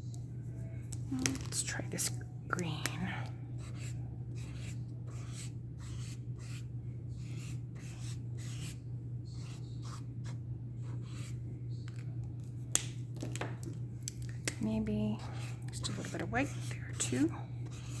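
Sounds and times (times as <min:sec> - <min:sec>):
steady low hum: 0:00.0 - 0:18.0
paint marker scratching on paper: 0:03.6 - 0:11.4, 0:15.2 - 0:18.0.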